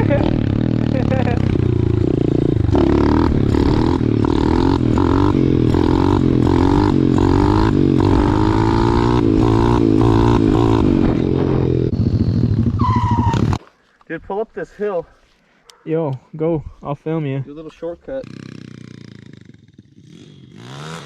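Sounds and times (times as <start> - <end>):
pit bike engine running: 0.0 - 13.6, 18.3 - 21.0.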